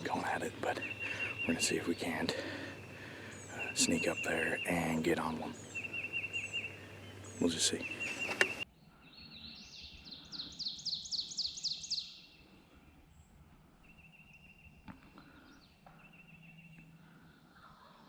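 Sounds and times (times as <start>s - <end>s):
faint high-pitched birdsong: 0.0s - 18.0s
loud whistled bird notes: 0.7s - 12.4s.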